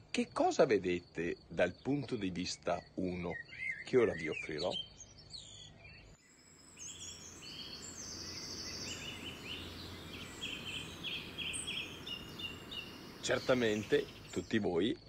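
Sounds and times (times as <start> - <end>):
birds singing trilled phrases: 1.6 - 15.0
faint low hum: 6.5 - 15.0.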